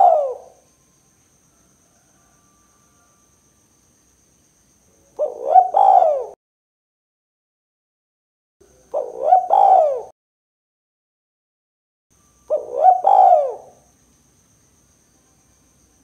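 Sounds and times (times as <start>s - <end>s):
dove cooing: 0.0s - 0.6s, 5.1s - 6.4s, 8.6s - 10.1s, 12.5s - 13.9s.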